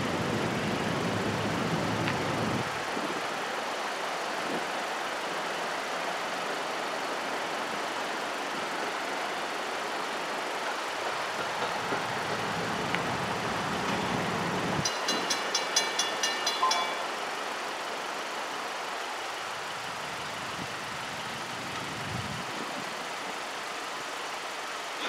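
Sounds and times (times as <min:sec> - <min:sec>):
train rumbling past: 0:10.1 - 0:18.9
crossing bell ringing: 0:11.3 - 0:17.9.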